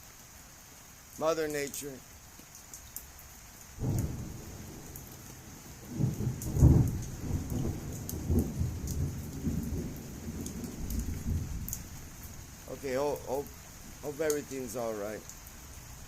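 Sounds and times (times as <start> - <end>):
heavy rain hissing: 0.0 - 16.0
thunder rumbling: 3.8 - 12.8.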